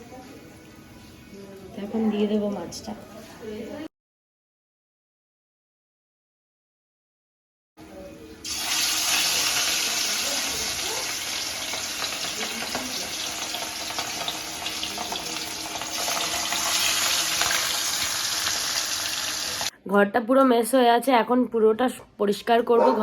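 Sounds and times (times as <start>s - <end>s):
fish frying in hot oil: 8.4s - 19.7s.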